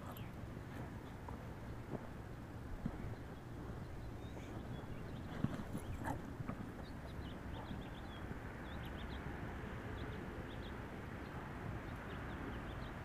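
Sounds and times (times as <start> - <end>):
low outdoor rumble: 0.0 - 13.0
small birds chirping: 2.8 - 13.0.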